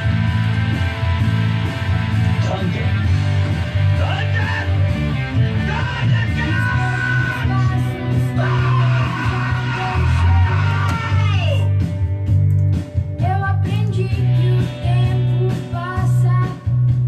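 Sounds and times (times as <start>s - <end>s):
electric guitars: 0.0s - 17.0s
person singing: 5.5s - 11.7s, 13.2s - 16.9s.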